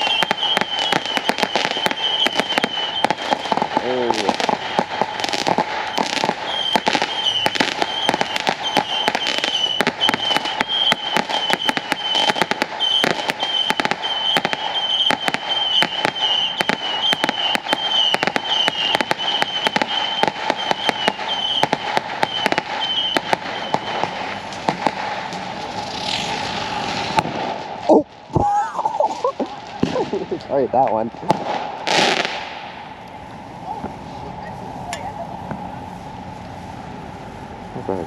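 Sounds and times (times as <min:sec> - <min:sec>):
high firework whistle: 0:00.0 - 0:28.0
fireworks crackling and popping: 0:00.0 - 0:38.0.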